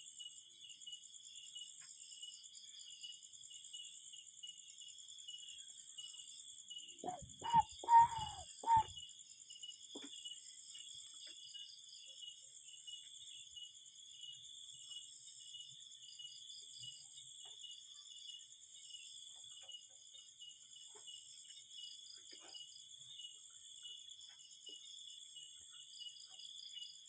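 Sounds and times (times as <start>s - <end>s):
insects trilling: 5.5s - 9.4s.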